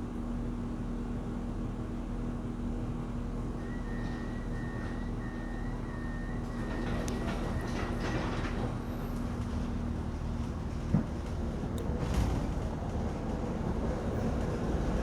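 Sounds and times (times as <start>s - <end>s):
vehicle rumble and hum: 1.7s - 15.0s.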